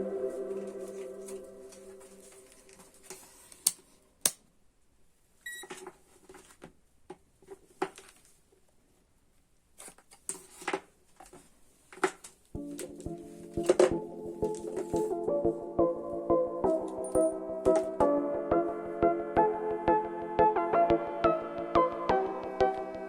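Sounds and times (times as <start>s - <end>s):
background music: 0.0s - 2.8s, 12.6s - 23.0s.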